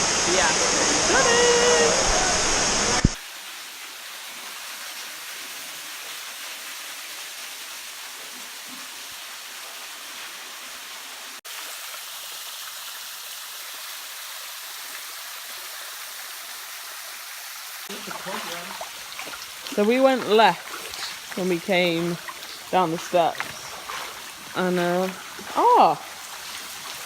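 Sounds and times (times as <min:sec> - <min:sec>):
waterfall rushing: 0:00.0 - 0:03.2, 0:17.8 - 0:27.0.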